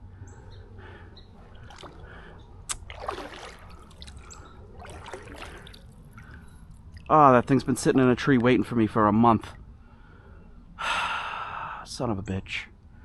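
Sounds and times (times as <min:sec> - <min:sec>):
water dripping: 0:01.4 - 0:08.6
canoe paddle swishing in water: 0:01.5 - 0:06.4.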